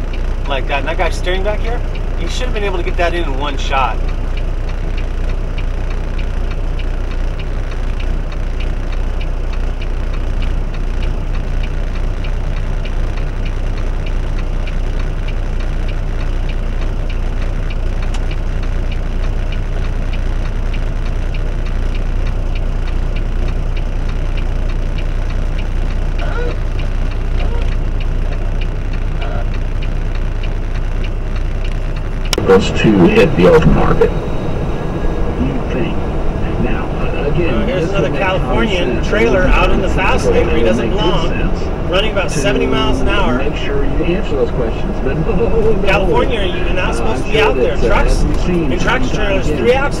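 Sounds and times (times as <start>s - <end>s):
fast regular clicking: 0.0s - 32.4s
truck engine and road drone: 0.0s - 50.0s.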